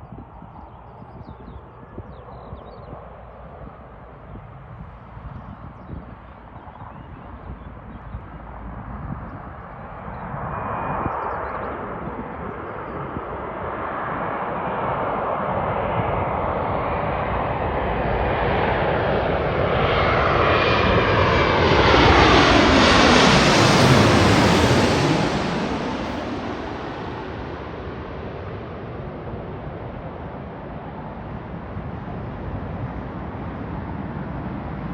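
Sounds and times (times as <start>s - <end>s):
jet airliner engines passing: 0.0s - 34.9s.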